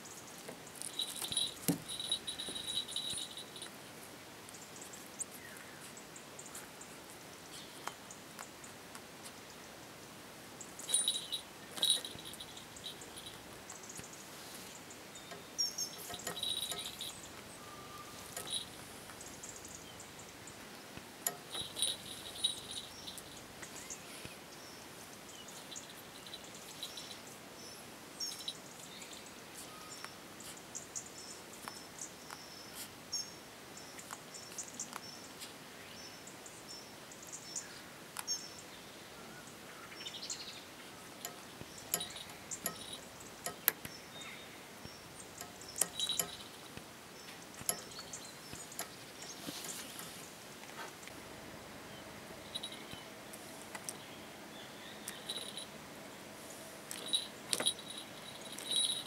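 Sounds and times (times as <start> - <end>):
high bird chirps: 15.2 - 20.2.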